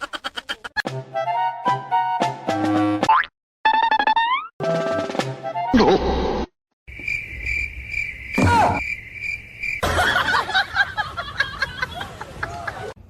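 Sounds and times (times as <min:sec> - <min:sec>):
insects chirping: 0:06.9 - 0:11.8.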